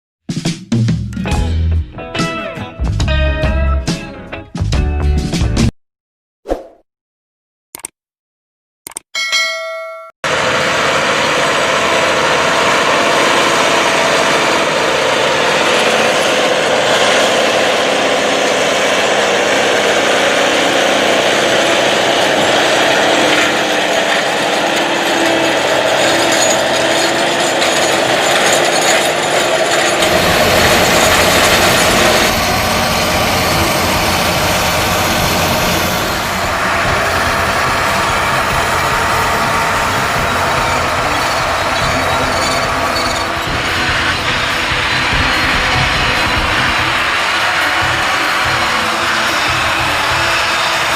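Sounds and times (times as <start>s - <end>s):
tractor diesel engine running: 10.2s - 50.9s.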